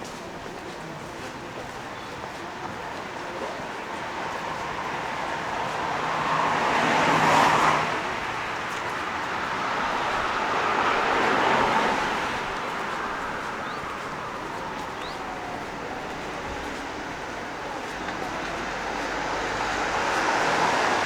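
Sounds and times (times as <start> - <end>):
city street traffic: 0.0 - 21.0
cars passing close by: 3.7 - 21.0.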